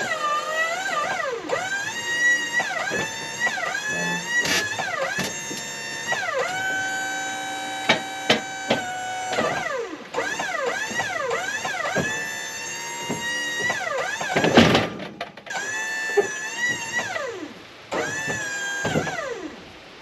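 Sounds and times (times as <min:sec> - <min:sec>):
sawmill hydraulics and engine whine: 0:00.0 - 0:20.0
sharp knocks: 0:07.8 - 0:17.2, 0:17.9 - 0:19.2.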